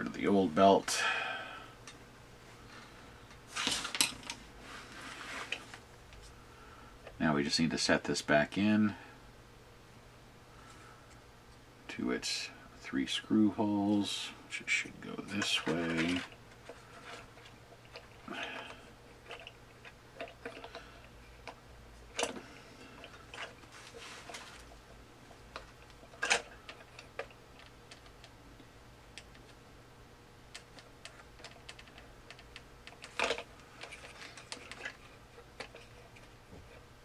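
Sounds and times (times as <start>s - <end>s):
small plastic parts clicking: 30.5s - 36.8s.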